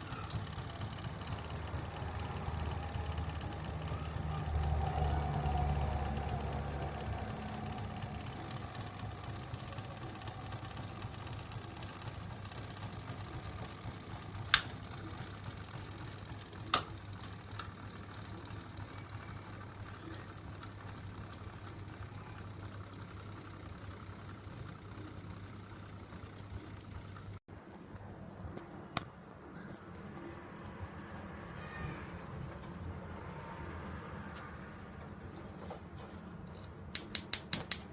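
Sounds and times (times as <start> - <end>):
stirling engine clattering: 0.0 - 21.7
sharp clicks: 14.4 - 15.2, 36.9 - 37.9.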